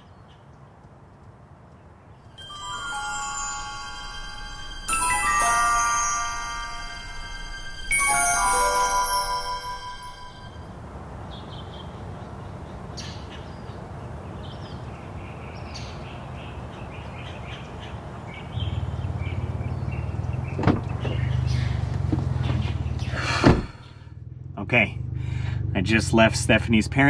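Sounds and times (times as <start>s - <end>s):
vehicle engine drone: 2.4s - 27.0s
birds chirping: 10.0s - 24.0s
low steady rumble: 17.7s - 25.6s
sharp knocks: 20.6s - 21.2s.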